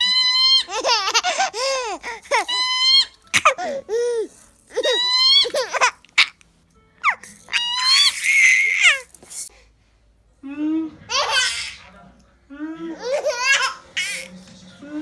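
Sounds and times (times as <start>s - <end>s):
baby laughing: 0.0s - 6.4s, 7.0s - 9.1s, 11.1s - 11.9s, 12.9s - 14.3s.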